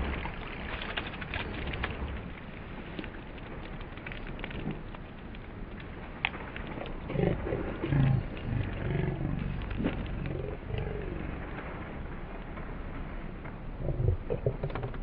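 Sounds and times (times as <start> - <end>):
roar-like voice: 7.1 - 11.4, 13.8 - 14.9.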